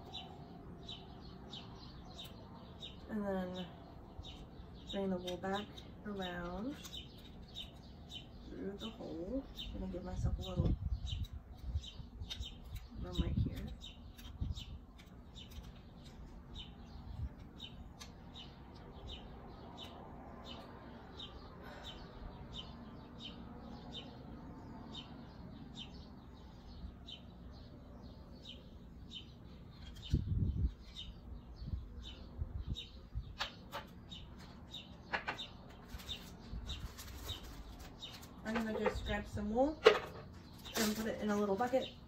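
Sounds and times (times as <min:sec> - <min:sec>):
bird chirping: 0:00.0 - 0:42.0.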